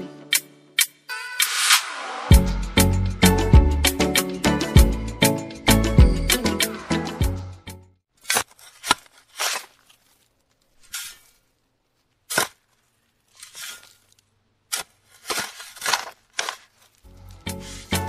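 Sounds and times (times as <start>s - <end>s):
trowel scraping sand: 8.2s - 18.0s.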